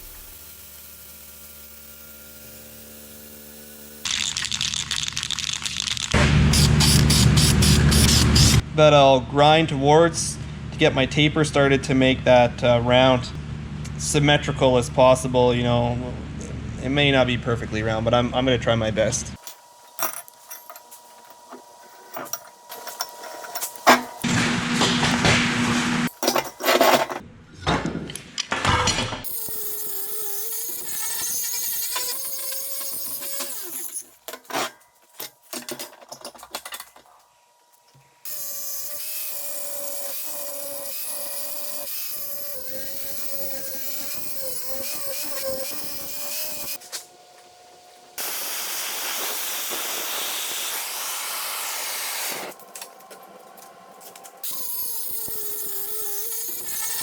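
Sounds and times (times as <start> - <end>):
angle grinder grinding steel: 0.0 - 8.6, 29.2 - 34.2, 38.2 - 47.1, 54.0 - 57.0.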